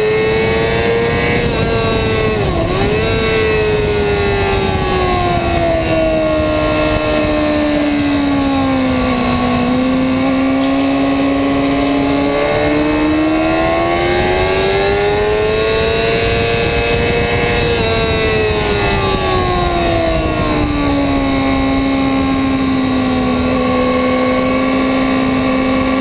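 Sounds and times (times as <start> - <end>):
sport bike engine at high revs: 0.0 - 26.0
wind rush: 0.0 - 26.0.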